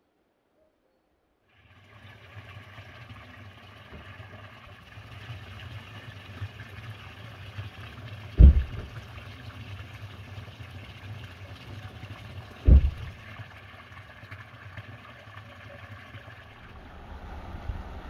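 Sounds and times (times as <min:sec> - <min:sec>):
low engine hum: 0:08.3 - 0:09.0, 0:12.6 - 0:13.2, 0:16.5 - 0:18.0
heavy low thumps: 0:08.4 - 0:09.0, 0:12.7 - 0:13.1.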